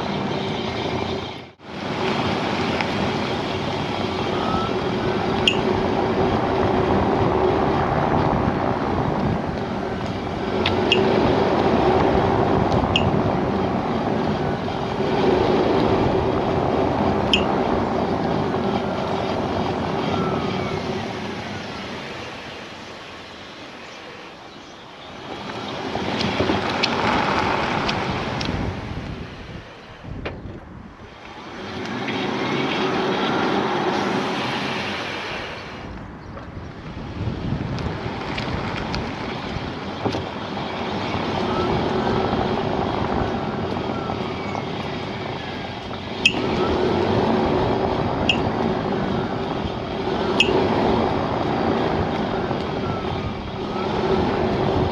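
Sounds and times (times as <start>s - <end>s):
road and tyre noise: 0.0s - 54.9s.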